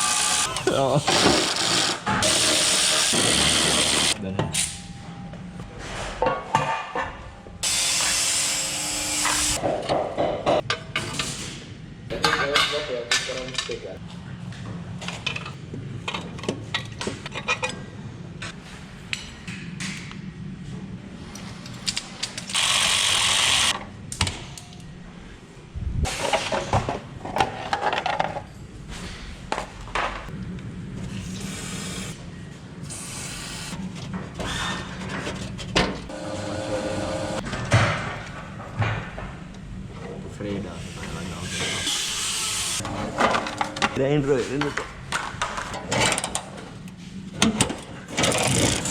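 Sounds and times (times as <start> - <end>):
power tool noise: 0.0 - 4.2, 7.6 - 9.6, 22.5 - 23.7, 36.1 - 37.4.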